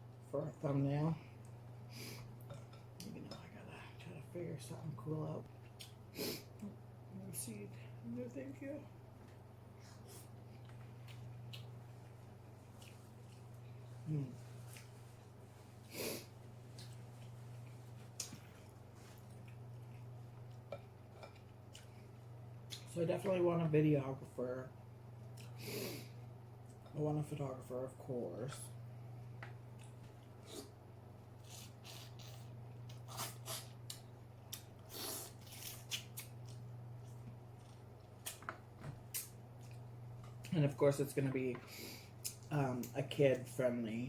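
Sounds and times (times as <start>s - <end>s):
low electrical hum: 0.0s - 44.0s
wet chewing: 10.0s - 13.9s.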